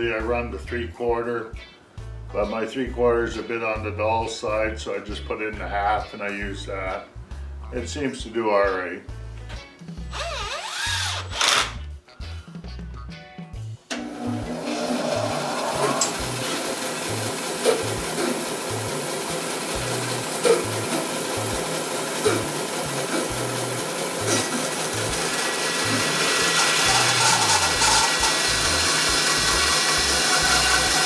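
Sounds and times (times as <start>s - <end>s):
bandsaw cutting log: 10.1s - 11.8s, 13.9s - 31.0s.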